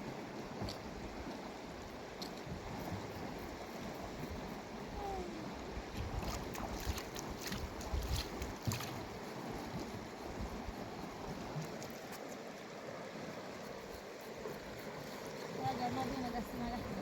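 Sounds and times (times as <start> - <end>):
river water running: 0.0 - 17.0
wind buffeting microphone: 0.6 - 11.8
splashes and knocks: 5.9 - 10.0.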